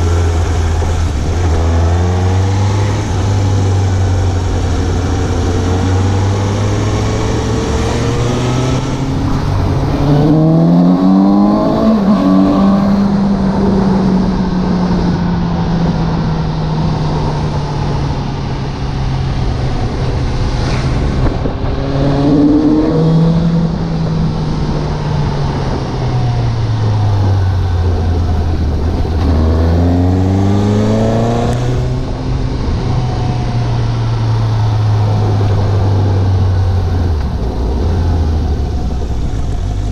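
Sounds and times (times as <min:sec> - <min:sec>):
motorcycle engine accelerating: 0:00.0 - 0:39.9
wind rush: 0:00.0 - 0:39.9.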